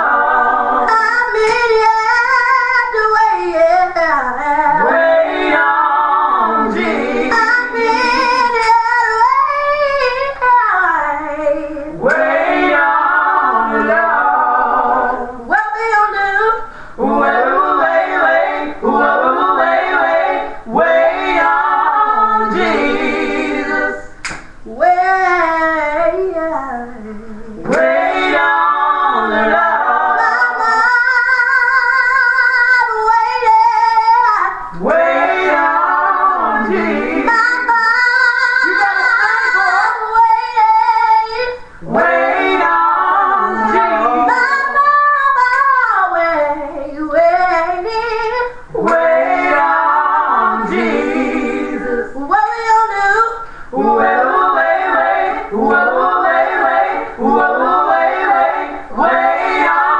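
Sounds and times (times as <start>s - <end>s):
woman singing gospel: 0.0s - 51.0s, 51.7s - 59.9s
singer breathing: 16.6s - 17.0s, 53.4s - 53.8s.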